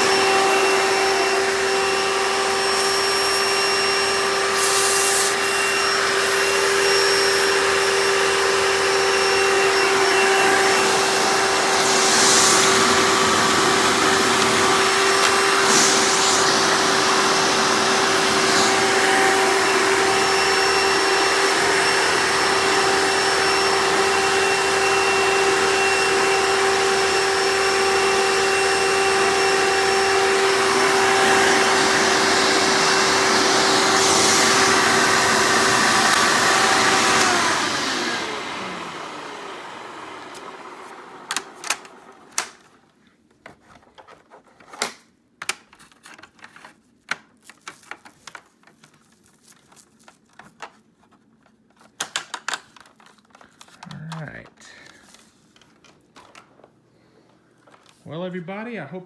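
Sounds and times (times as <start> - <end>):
vacuum cleaner motor whine: 0.0 - 42.6
air hissing through hose: 10.8 - 19.0.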